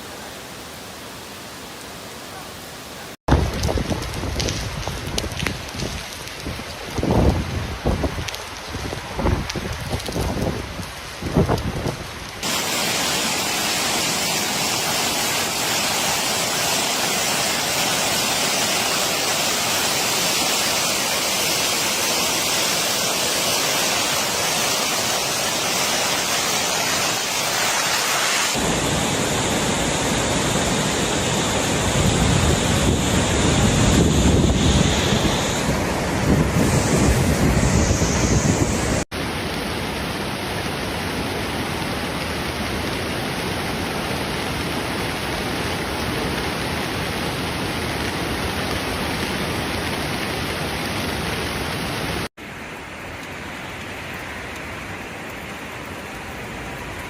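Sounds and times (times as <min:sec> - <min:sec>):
heavy rain hissing: 0:00.0 - 0:57.0
wind buffeting microphone: 0:03.3 - 0:12.1, 0:31.2 - 0:39.0
deep rushing noise: 0:27.7 - 0:39.0.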